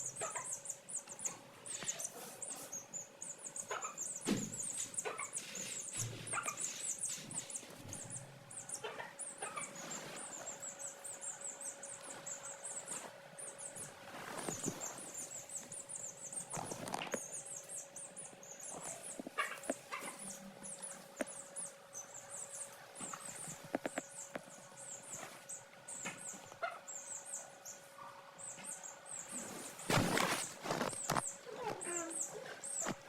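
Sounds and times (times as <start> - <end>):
chicks peeping: 0.0 - 33.0
light taps and scratches: 23.0 - 26.6.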